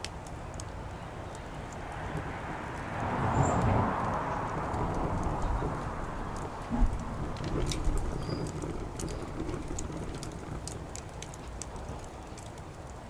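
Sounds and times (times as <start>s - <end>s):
wood fire crackling and popping: 0.0s - 13.0s
low rumble: 3.0s - 10.2s.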